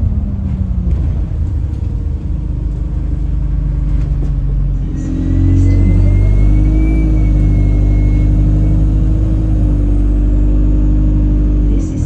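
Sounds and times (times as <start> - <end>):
bus engine rumble: 0.0 - 12.0
tonal drone: 0.0 - 12.0
faint high whistle: 4.9 - 10.3.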